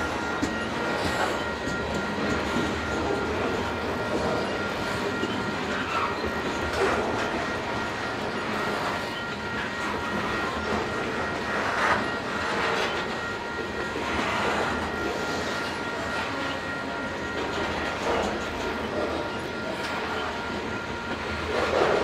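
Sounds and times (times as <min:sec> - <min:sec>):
freight wheels rumbling on rails: 0:00.0 - 0:22.0.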